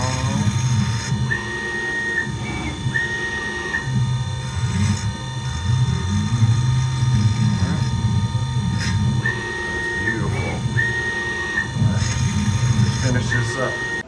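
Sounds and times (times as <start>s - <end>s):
mill low running hum: 0.0s - 14.0s.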